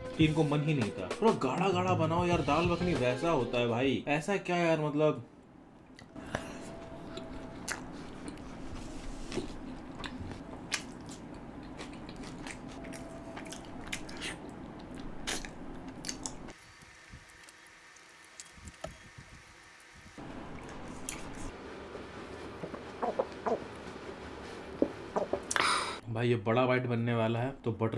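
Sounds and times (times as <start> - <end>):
man chewing food: 5.8 - 21.6, 22.4 - 23.8
wet mouth clicks and lip smacks: 13.5 - 16.4.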